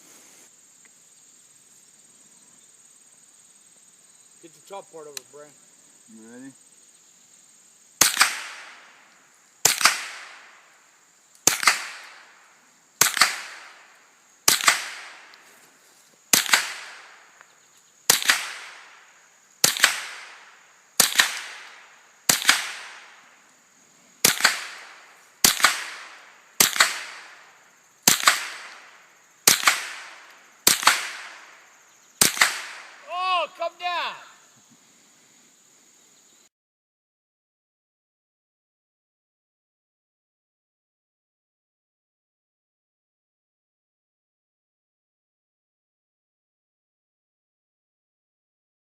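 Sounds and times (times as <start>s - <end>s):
gunshots with echo: 24.2s - 27.4s, 29.5s - 31.5s, 32.2s - 33.2s.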